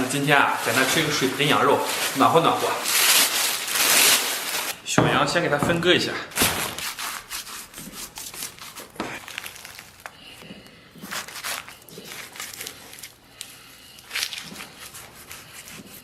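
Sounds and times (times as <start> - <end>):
knife cutting raw meat: 10.9 - 13.2.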